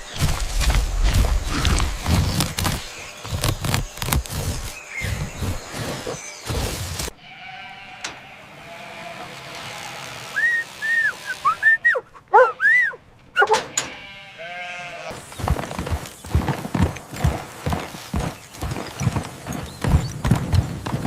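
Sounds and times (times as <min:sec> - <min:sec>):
animals bleating: 0:07.1 - 0:15.4.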